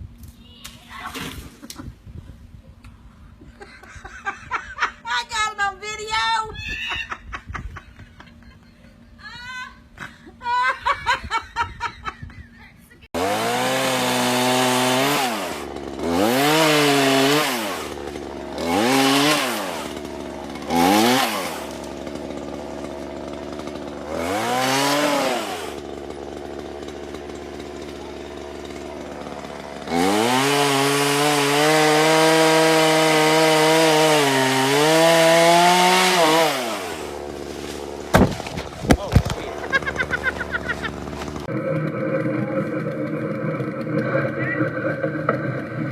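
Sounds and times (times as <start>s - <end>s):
chainsaw engine revving: 13.2s - 45.9s.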